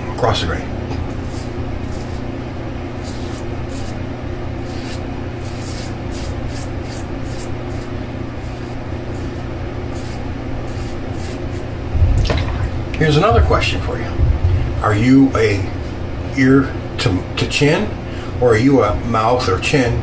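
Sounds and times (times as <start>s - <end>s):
fan humming: 0.0s - 20.0s
razor scraping stubble: 1.0s - 2.4s, 3.0s - 11.8s.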